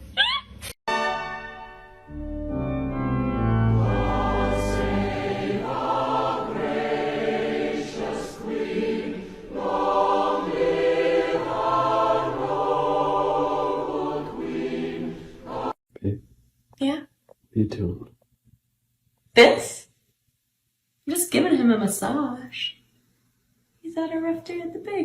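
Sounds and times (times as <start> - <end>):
choir singing sustained chords: 0.9 - 15.8
low bass note: 2.1 - 5.1.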